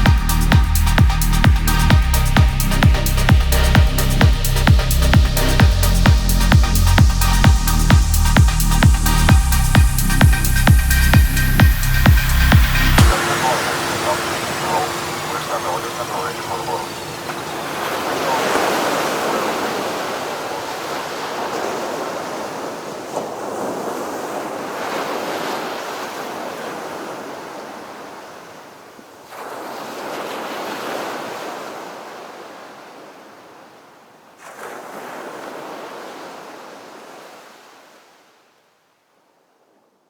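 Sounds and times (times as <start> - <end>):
surf-like wash of noise: 7.6 - 32.8.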